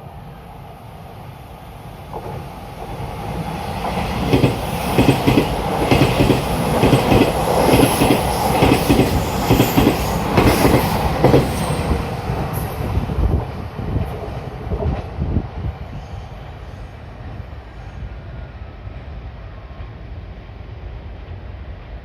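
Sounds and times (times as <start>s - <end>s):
train wheels clicking over rail joints: 3.9s - 12.9s.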